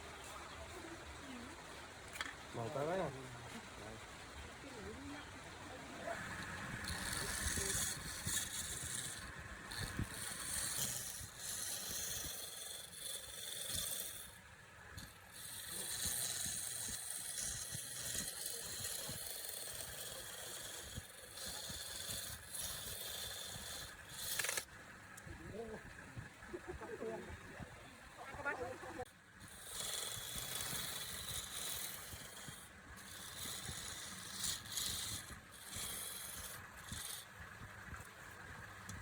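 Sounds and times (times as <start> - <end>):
lathe tool scraping wood: 6.2 - 14.4, 15.0 - 24.7, 29.4 - 38.0.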